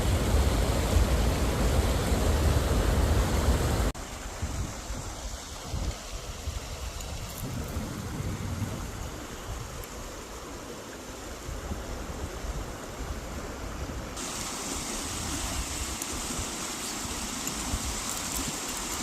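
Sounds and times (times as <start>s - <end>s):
stream water rushing: 0.0s - 19.0s.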